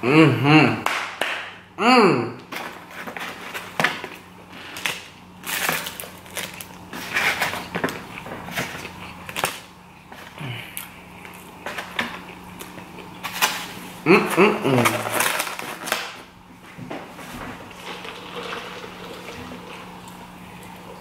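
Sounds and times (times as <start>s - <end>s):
steady low hum: 0.0s - 21.0s
chewing and crunching food: 2.8s - 16.1s.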